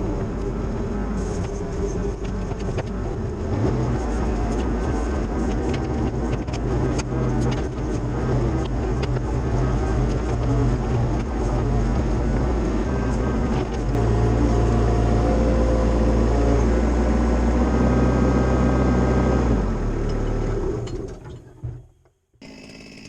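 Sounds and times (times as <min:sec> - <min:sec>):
excavator diesel engine under load: 0:00.0 - 0:21.2.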